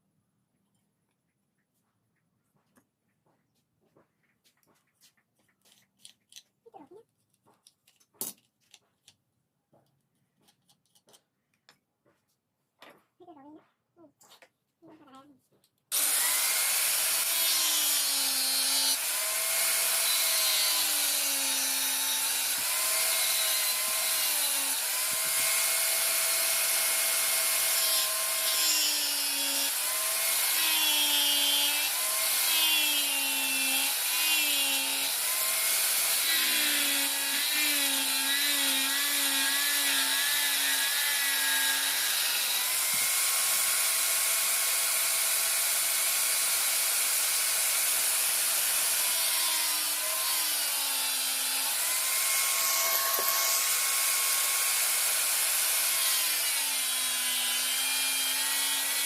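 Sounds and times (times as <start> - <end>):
electric grinder grinding steel: 15.9 - 59.0.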